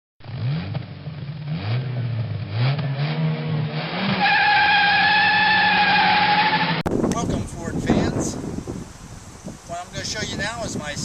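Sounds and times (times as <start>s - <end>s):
car engine revving: 0.2s - 6.8s
tyre squeal: 4.1s - 6.8s.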